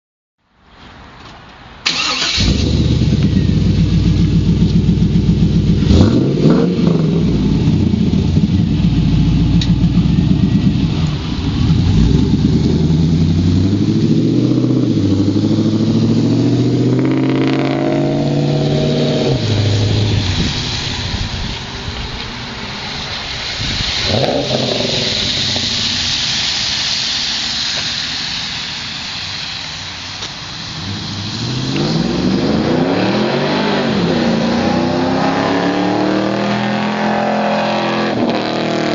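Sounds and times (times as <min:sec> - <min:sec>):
car engine starting: 0:01.8 - 0:38.9
car engine idling and revving: 0:01.9 - 0:38.9.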